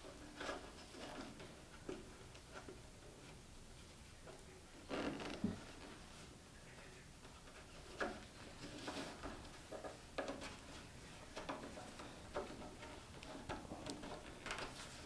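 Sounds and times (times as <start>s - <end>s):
cable scraping and knocking: 7.5s - 15.0s.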